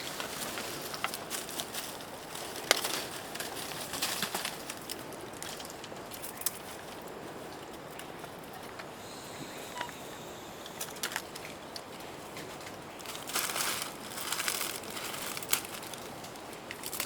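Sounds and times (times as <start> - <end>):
dry leaves crunching: 0.0 - 6.4, 12.4 - 17.0.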